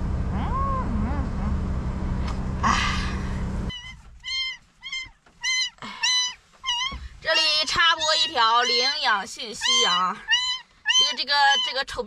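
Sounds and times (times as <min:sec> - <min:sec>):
steady low hum: 0:00.0 - 0:04.2
kitten meowing: 0:03.7 - 0:07.1, 0:08.0 - 0:11.9
faint calls: 0:03.7 - 0:11.9.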